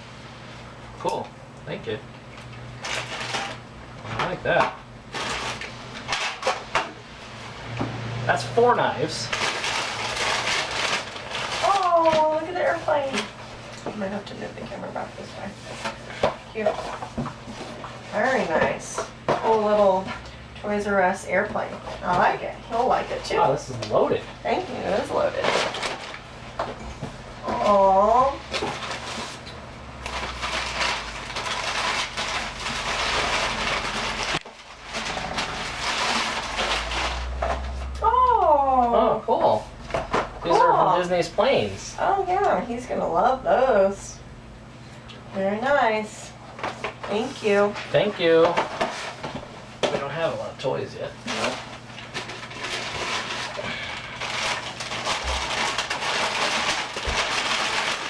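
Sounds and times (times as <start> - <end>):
wrapping crinkling and rustling: 2.5 - 6.8, 8.6 - 20.2, 21.6 - 26.3, 27.4 - 43.6, 51.2 - 58.0.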